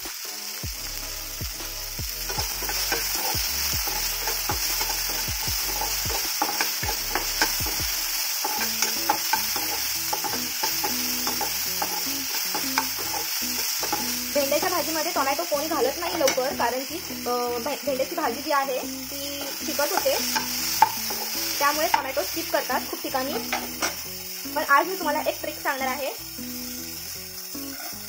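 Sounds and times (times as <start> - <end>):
vegetables sizzling in hot oil: 0.0 - 28.0
spatula scraping the pan: 2.3 - 14.8, 19.4 - 22.3, 27.6 - 28.0.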